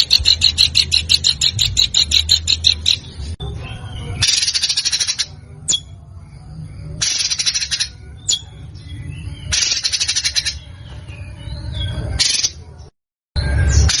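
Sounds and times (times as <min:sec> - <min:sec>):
songbird harsh rattling notes: 0:00.0 - 0:03.4, 0:04.1 - 0:06.0, 0:06.9 - 0:12.6
soft bird chirps: 0:00.0 - 0:14.0.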